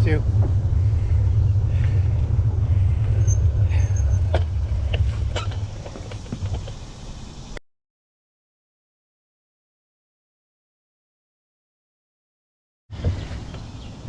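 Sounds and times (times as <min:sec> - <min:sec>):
wind rumbling on microphone: 0:00.0 - 0:07.6.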